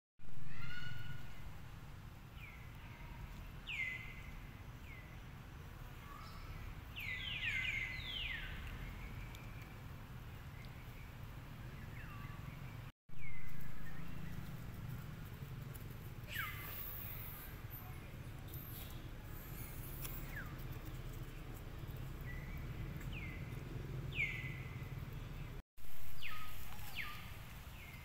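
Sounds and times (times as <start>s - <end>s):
birds chirping: 6.0s - 15.0s, 16.2s - 25.6s.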